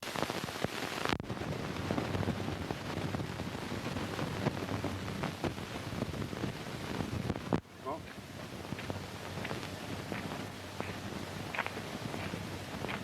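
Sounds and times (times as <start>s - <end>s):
film soundtrack hiss and crackle: 0.0s - 13.0s.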